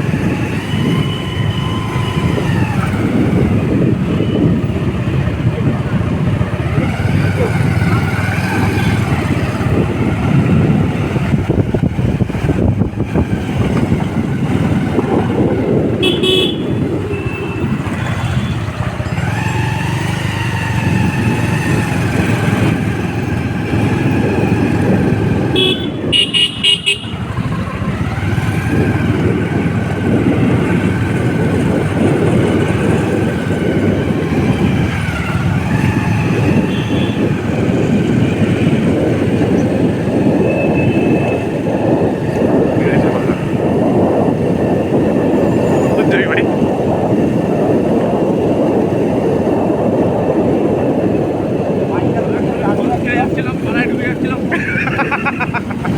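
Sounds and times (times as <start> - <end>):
motorcycle riding rumble: 0.0 - 55.9
horn beeping: 15.9 - 18.8, 25.4 - 27.6, 40.2 - 41.6.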